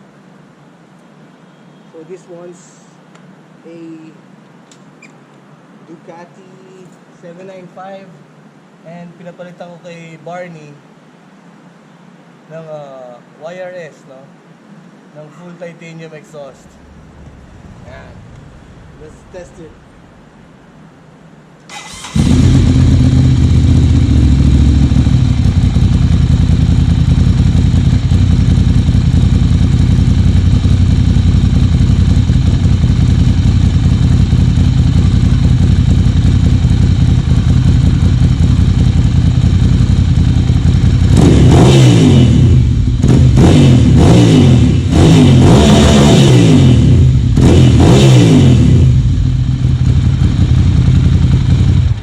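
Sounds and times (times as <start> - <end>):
motorcycle engine revving: 21.7 - 52.0
motorcycle engine idling: 21.8 - 43.4, 48.6 - 52.0.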